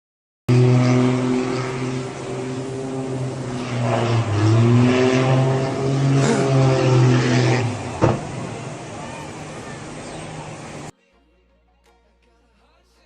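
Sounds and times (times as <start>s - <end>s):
engine droning: 0.5s - 10.9s.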